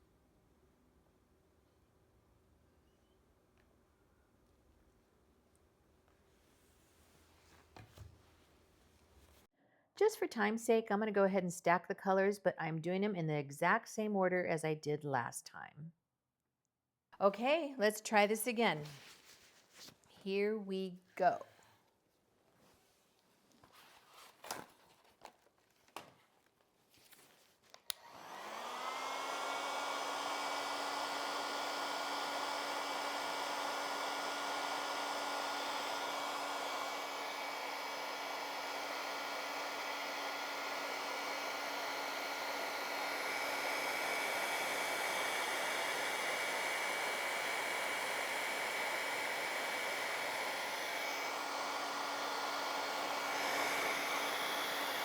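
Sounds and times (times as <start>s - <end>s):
hair dryer blowing: 27.8s - 55.0s.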